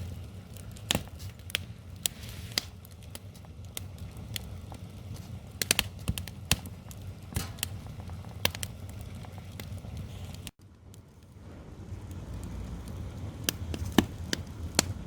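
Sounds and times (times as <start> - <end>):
wood fire crackling and popping: 0.0 - 15.0
low rumble: 10.8 - 15.0.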